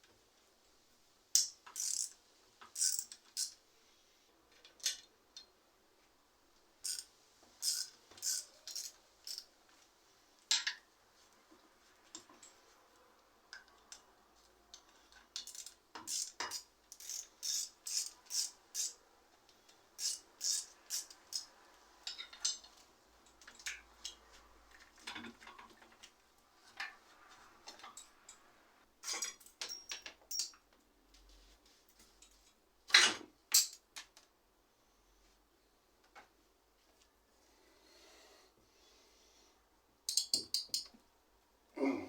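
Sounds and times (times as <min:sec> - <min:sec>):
metallic tool clicks and clinks: 0:01.4 - 0:02.2, 0:02.8 - 0:03.6, 0:20.0 - 0:21.5, 0:29.0 - 0:30.6, 0:40.1 - 0:41.0.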